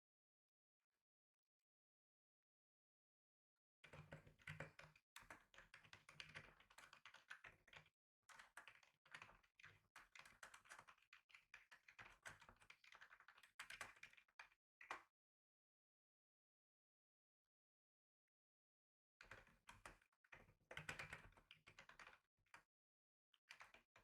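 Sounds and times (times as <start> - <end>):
typing on computer keyboard: 3.9 - 14.4, 19.3 - 22.2.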